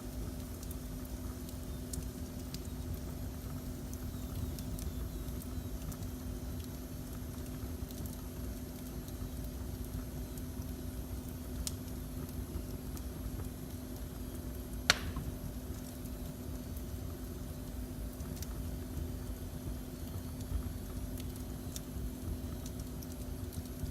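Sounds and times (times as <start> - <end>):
fireplace fire rumbling: 0.0 - 23.9
faint crackles: 0.1 - 16.5, 17.2 - 23.9
loud sharp pop: 14.9 - 15.3.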